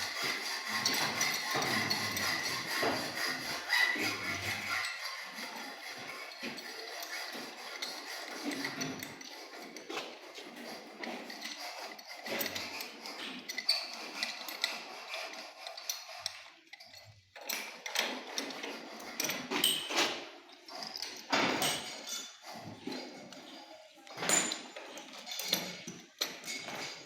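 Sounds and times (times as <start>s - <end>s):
metal knocks and clinks: 16.7s - 23.5s, 24.2s - 27.0s.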